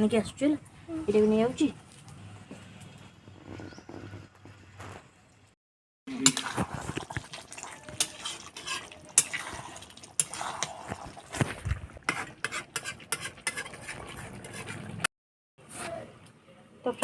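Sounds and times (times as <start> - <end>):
ladle scraping a cooking pot: 6.1 - 15.1.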